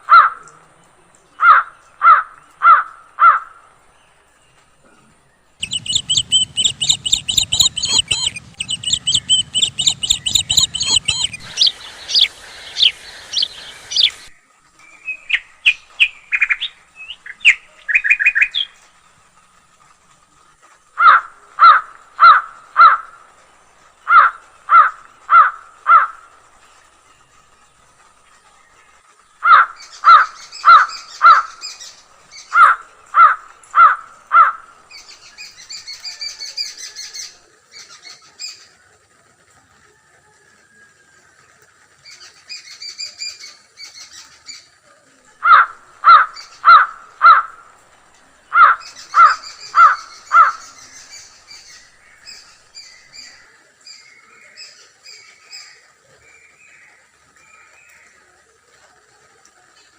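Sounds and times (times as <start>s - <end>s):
small birds chirping: 4.1s - 19.0s, 22.2s - 38.8s, 42.0s - 58.5s
crows cawing: 24.1s - 26.2s, 29.4s - 31.5s, 32.6s - 34.7s, 45.4s - 47.7s, 48.5s - 50.8s.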